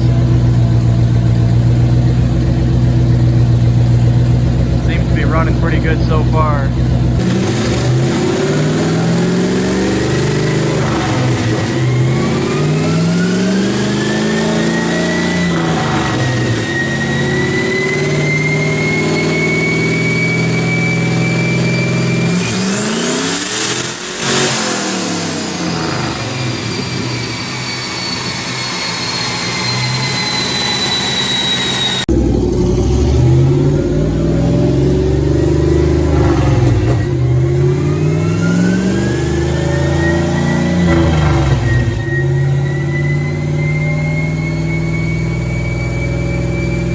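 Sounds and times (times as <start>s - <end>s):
engine full-throttle pull: 0.0s - 46.9s
turbo whine: 0.0s - 46.9s
high whistle: 9.9s - 32.1s, 35.6s - 46.9s.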